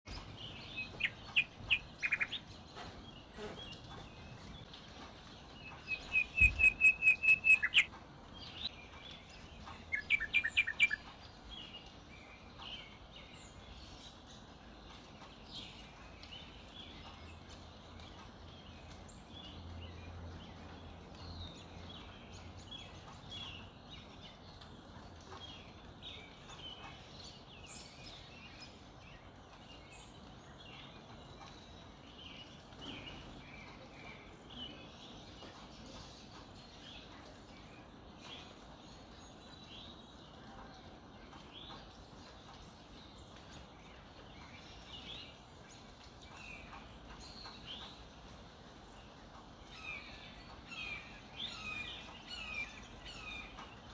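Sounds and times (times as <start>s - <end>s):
birds chirping: 0.1s - 53.9s.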